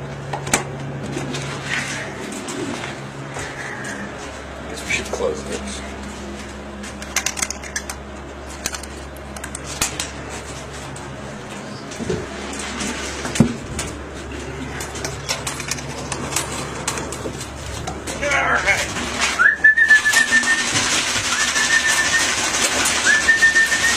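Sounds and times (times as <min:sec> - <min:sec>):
steady low hum: 0:00.0 - 0:21.5
faint pigeon sounds: 0:01.0 - 0:12.7.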